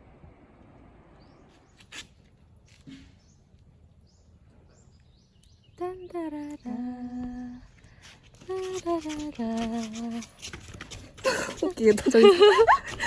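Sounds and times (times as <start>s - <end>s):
person humming a tune: 5.8s - 7.6s.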